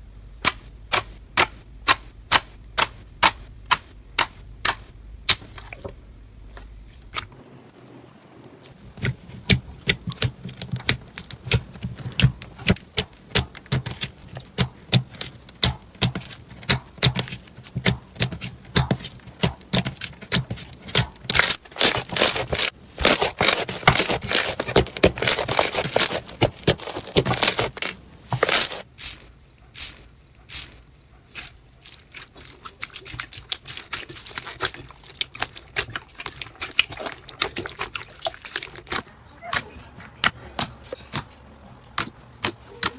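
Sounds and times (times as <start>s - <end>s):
slime clicking and popping: 9.0s - 28.8s.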